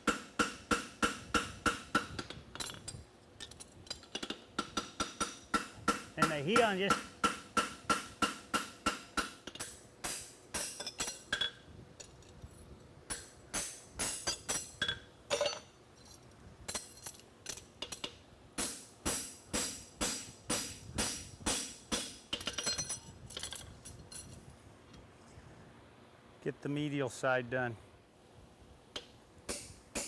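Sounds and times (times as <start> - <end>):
hammer striking horseshoe on anvil: 0.0 - 2.8, 4.2 - 11.6, 13.1 - 15.7, 17.5 - 23.1, 29.0 - 30.0.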